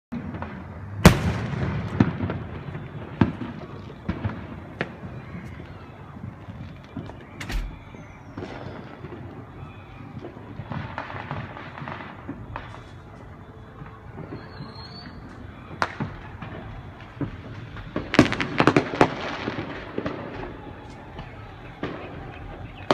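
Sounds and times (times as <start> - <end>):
fireworks bangs: 0.1 - 22.9
fireworks rumbling and crackling: 0.1 - 22.9.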